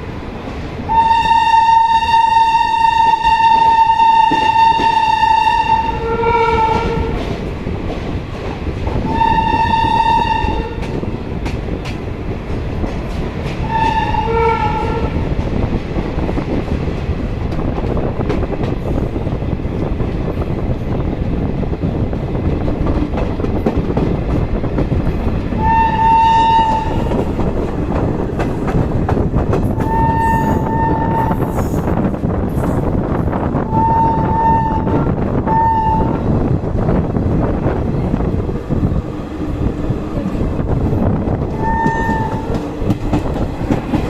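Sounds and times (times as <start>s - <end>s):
train rumbling and clattering: 0.0s - 44.0s
train horn blasts: 0.9s - 7.2s, 9.0s - 10.9s, 13.6s - 15.2s, 25.6s - 27.2s, 29.8s - 31.5s, 33.7s - 36.2s, 41.6s - 42.6s.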